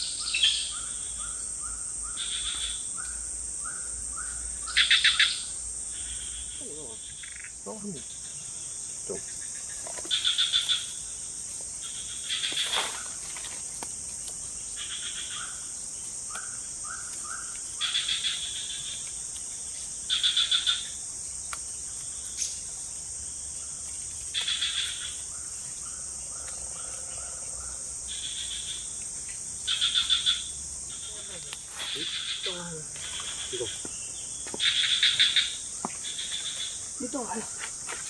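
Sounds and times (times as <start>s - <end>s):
high-pitched insect drone: 0.0s - 38.0s.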